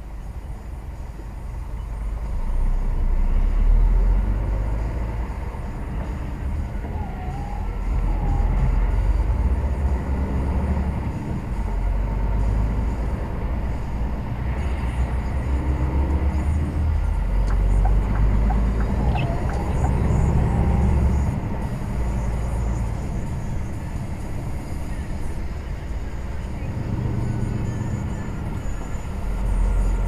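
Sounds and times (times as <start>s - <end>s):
lorry engine and road rumble: 0.0s - 30.0s.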